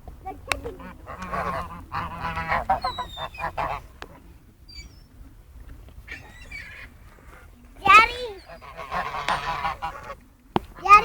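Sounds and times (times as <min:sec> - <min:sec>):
waterfowl calling: 0:00.3 - 0:11.0
high gliding bird cries: 0:02.7 - 0:03.8, 0:04.7 - 0:05.2, 0:06.1 - 0:07.0, 0:07.8 - 0:10.0.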